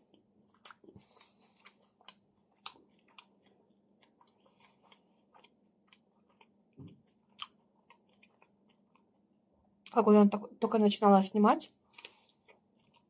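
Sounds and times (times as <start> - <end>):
close-miked chewing: 0.0 - 9.2, 11.9 - 13.0.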